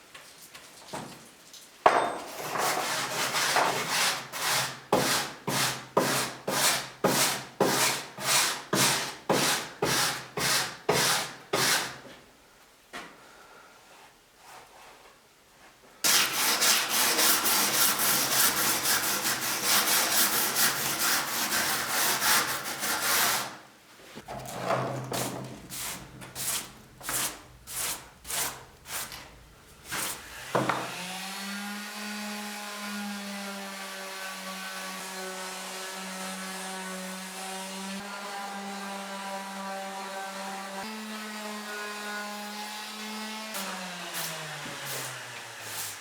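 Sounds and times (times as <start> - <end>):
hand scraping wood: 2.4 - 12.1, 16.1 - 31.0.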